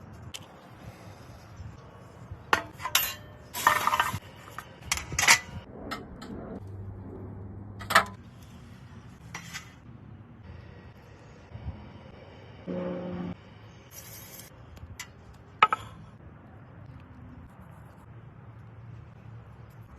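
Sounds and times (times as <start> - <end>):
metal utensils clinking: 2.6 - 4.2.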